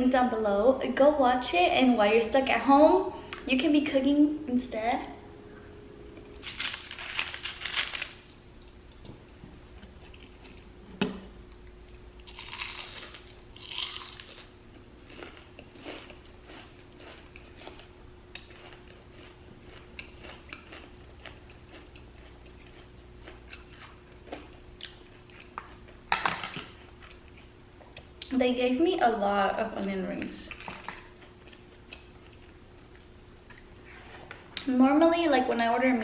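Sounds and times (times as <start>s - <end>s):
soft chewing: 9.7s - 10.7s, 11.5s - 26.0s, 26.6s - 28.4s, 30.5s - 34.7s
crunchy bites of fried food: 12.2s - 26.0s.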